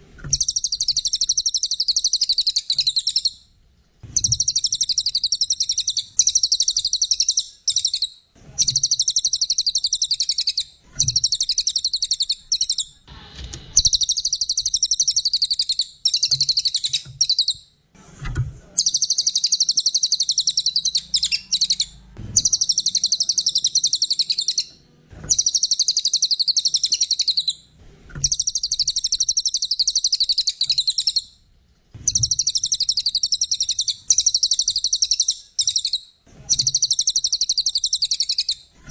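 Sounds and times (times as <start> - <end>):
songbird singing high trills: 4.2 - 12.9, 18.8 - 24.7, 32.1 - 38.6.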